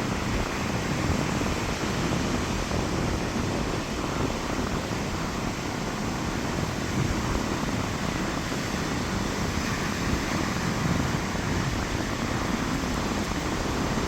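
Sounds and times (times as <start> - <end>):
rough surf breaking on beach: 0.0 - 14.0
strong wind: 0.0 - 14.0.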